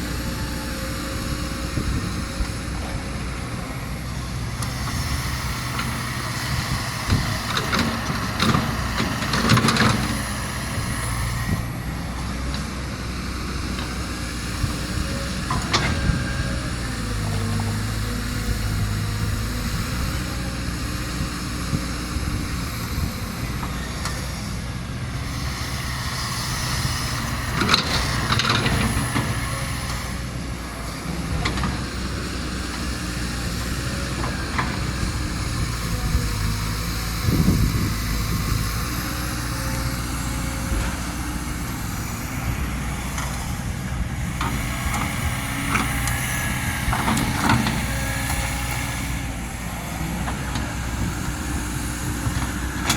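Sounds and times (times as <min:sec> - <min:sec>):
excavator running: 0:00.0 - 0:52.9.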